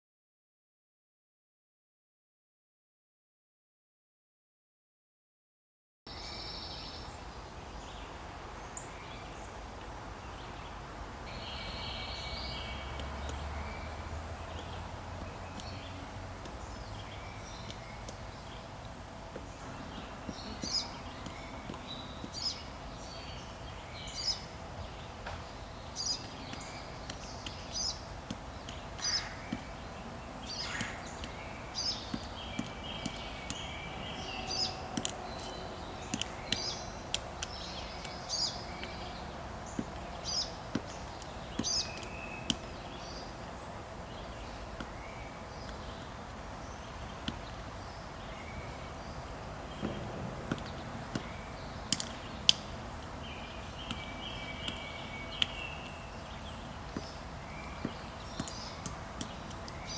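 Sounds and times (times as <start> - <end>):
small birds singing: 6.1 - 59.9
woodpecker knocking on log: 49.8 - 52.6.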